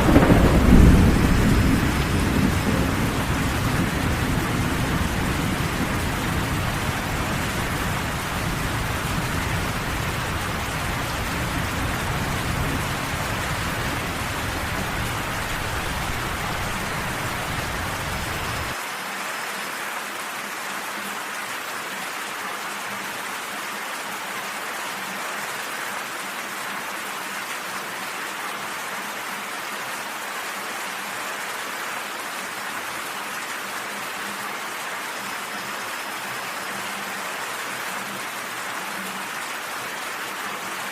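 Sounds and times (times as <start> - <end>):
steady rain falling: 0.0 - 40.9
low rumble: 5.8 - 18.7.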